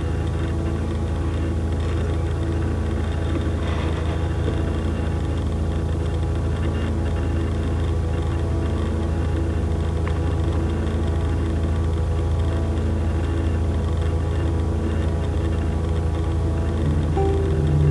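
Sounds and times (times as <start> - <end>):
low droning hum: 15.7 - 17.9.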